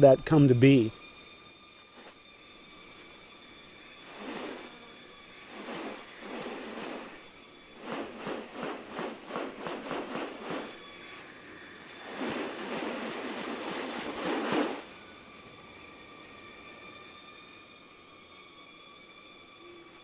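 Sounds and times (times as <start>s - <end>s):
high insect drone: 0.0s - 20.0s
short noisy rasps: 4.0s - 15.0s.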